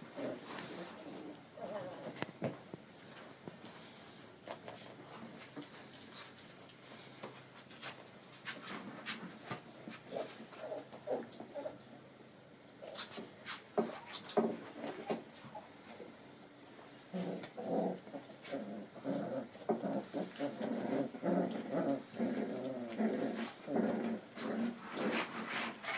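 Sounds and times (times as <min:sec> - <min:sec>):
puppies growling and yipping: 0:00.1 - 0:02.2, 0:10.1 - 0:11.9, 0:17.1 - 0:25.9.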